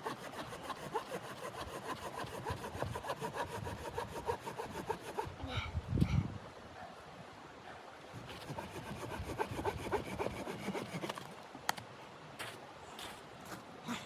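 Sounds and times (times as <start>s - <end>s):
hand saw cutting wood: 0.0s - 5.4s, 8.2s - 11.3s.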